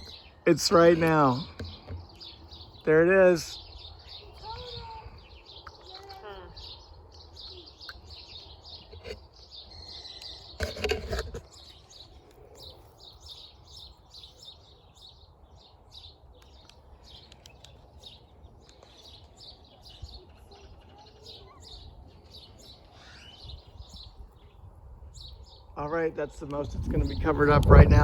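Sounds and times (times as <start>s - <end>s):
small birds chirping: 0.0s - 28.0s
wind on microphone: 3.7s - 5.5s, 26.6s - 28.0s.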